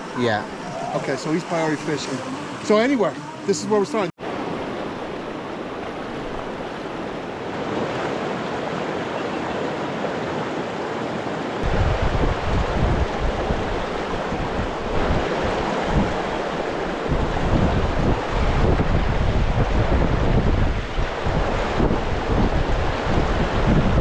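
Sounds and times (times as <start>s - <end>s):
flowing river water: 0.0s - 24.0s
wind buffeting microphone: 11.6s - 24.0s.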